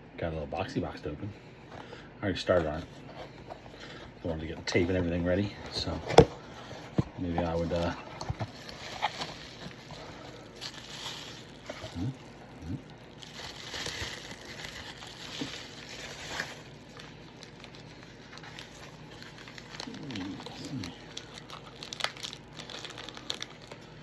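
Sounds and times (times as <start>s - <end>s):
packaging rustling and crinkling: 2.5s - 24.0s.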